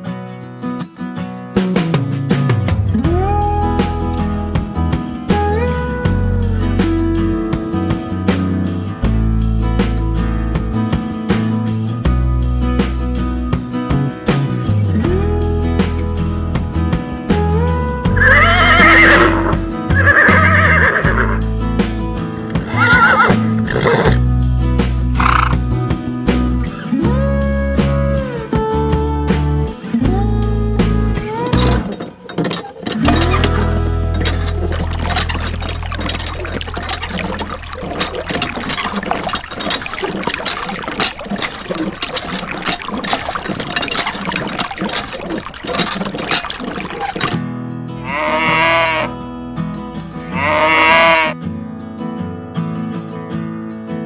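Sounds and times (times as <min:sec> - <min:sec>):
horse whinnying: 0:18.1 - 0:21.4, 0:22.6 - 0:24.2
water trickling and splashing: 0:31.2 - 0:47.4.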